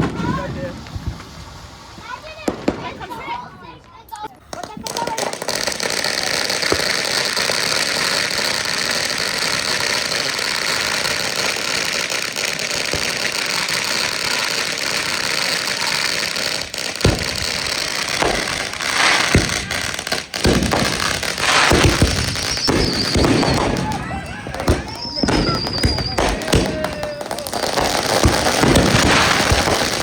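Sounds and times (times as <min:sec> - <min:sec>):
fountain firework hissing: 0:00.0 - 0:03.6, 0:04.4 - 0:30.0
sharp pops: 0:16.6 - 0:30.0.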